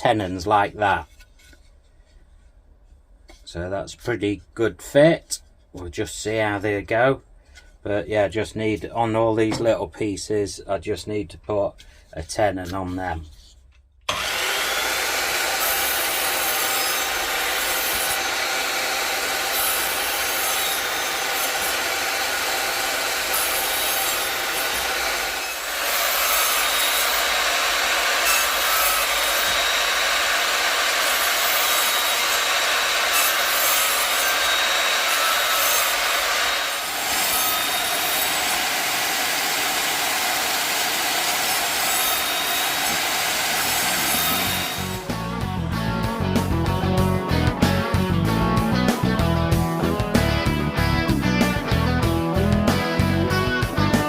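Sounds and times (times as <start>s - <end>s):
chop saw cutting wood: 14.1s - 45.5s.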